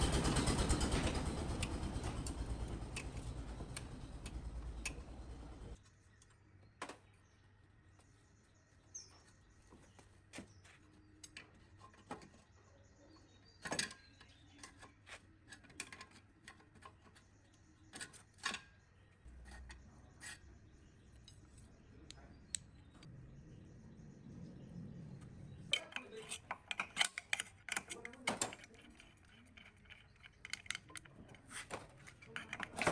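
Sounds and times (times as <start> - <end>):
metal parts and tools tapping: 25.6 - 32.9.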